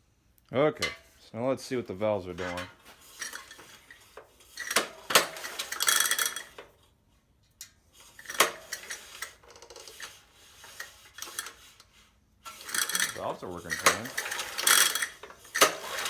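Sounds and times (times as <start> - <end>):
metallic clicks and clinks: 12.7 - 15.2.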